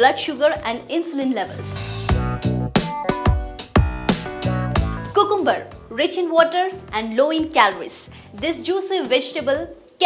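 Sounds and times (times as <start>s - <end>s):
electronic drum beat: 1.8s - 5.2s.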